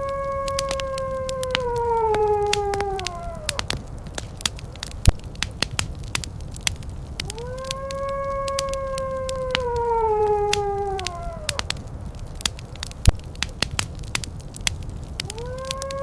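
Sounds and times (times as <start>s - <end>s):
wolf howling: 0.0s - 4.9s, 7.2s - 12.6s, 15.2s - 16.0s
wood fire crackling and popping: 0.0s - 16.0s.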